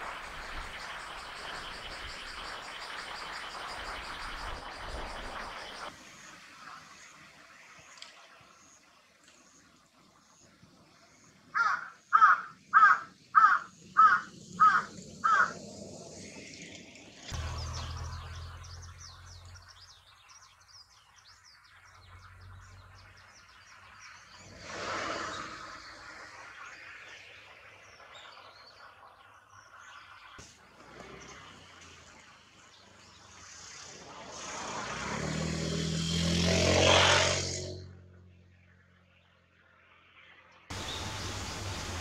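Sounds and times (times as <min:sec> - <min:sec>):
waterbird harsh calls: 0:11.6 - 0:15.6
low wind rumble: 0:40.7 - 0:42.0.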